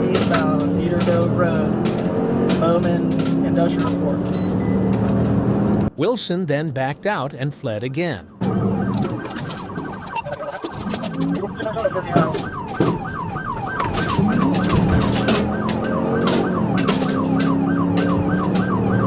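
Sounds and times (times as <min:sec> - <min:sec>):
vehicle hum: 0:00.0 - 0:06.0, 0:08.3 - 0:19.0
police siren yelping: 0:08.2 - 0:19.0.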